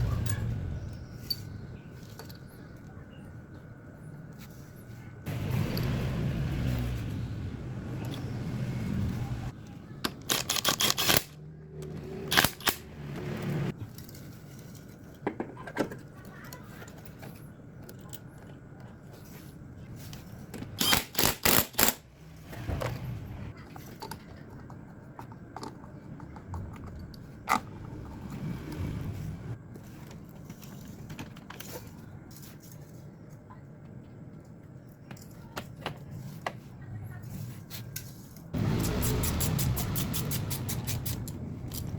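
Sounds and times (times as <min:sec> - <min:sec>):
metal tools clinking and rattling: 0:37.9 - 0:41.9.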